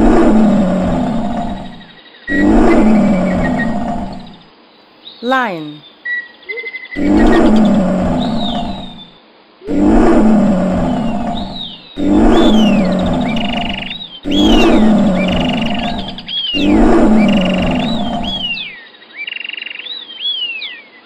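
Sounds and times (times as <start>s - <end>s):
lion roaring: 0.0s - 4.4s, 7.0s - 18.7s.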